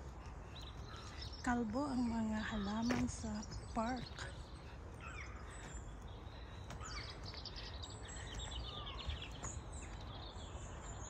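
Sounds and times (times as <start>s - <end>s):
small birds singing and chirping: 0.0s - 11.0s.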